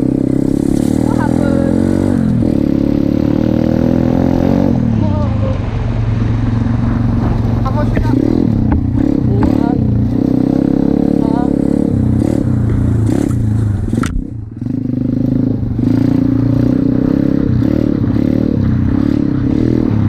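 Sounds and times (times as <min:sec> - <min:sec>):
pit bike engine running: 0:00.0 - 0:20.0.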